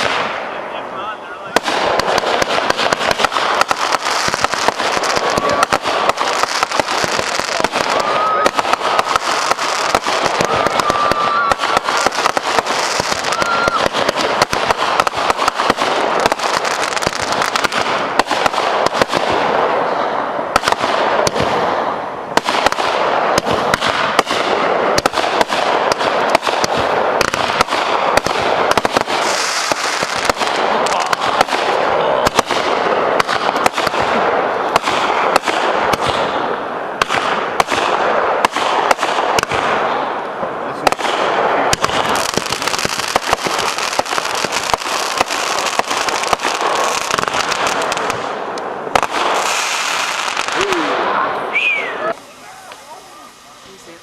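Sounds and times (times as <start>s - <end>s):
fireworks crackling and popping: 0.0s - 54.0s
thin whistling tone: 51.5s - 52.1s.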